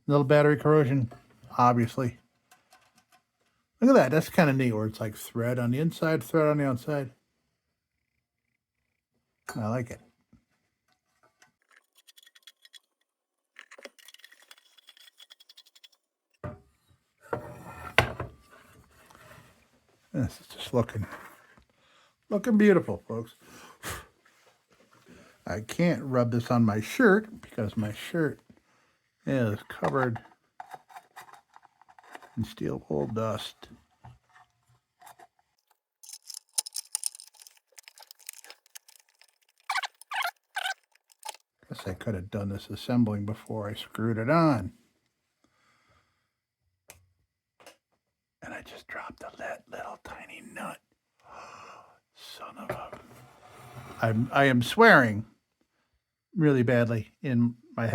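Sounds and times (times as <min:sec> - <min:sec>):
small parts clicking: 0:11.4 - 0:16.0, 0:36.0 - 0:41.4
rapid small ticks and clinks: 0:11.5 - 0:16.0, 0:36.0 - 0:41.4
handling noise: 0:36.0 - 0:41.4.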